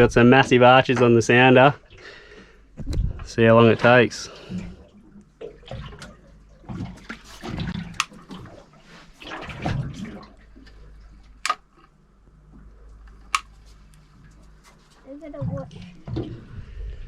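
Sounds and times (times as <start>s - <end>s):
low steady hum: 0.0s - 17.0s
water slapping against boat hull: 2.8s - 11.7s, 14.2s - 16.6s.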